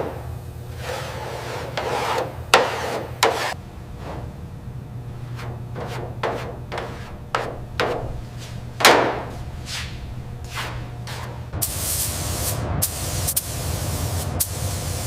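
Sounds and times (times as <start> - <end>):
steady low hum: 0.0 - 15.0
hiss: 11.6 - 15.0.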